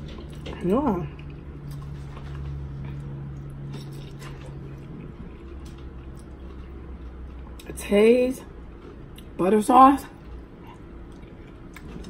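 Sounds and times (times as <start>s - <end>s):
chewing and mouth clicks: 0.0s - 7.8s, 10.3s - 12.0s
low steady hum: 0.0s - 12.0s.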